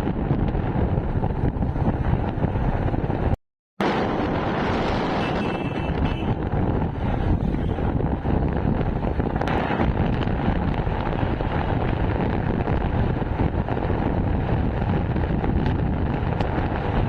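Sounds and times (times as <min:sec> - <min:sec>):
road and engine noise: 0:00.0 - 0:17.0
wind buffeting microphone: 0:00.0 - 0:17.0.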